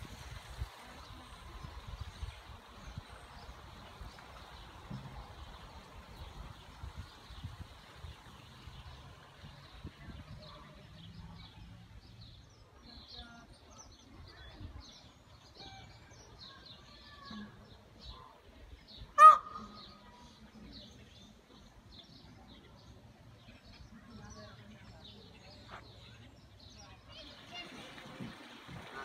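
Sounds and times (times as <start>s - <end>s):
small birds chirping: 0.0s - 29.0s
loud short bird call: 19.2s - 20.0s.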